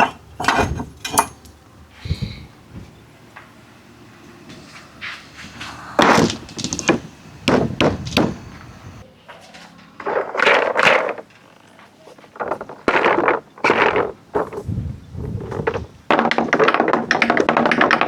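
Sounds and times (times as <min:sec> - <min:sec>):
marbles clattering on wooden track: 0:05.5 - 0:08.8, 0:10.0 - 0:14.6, 0:15.5 - 0:18.0.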